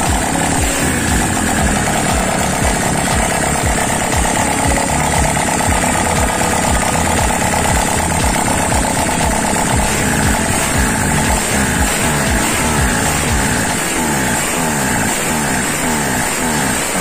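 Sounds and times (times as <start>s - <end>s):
two-cylinder engine idling: 0.0s - 17.0s.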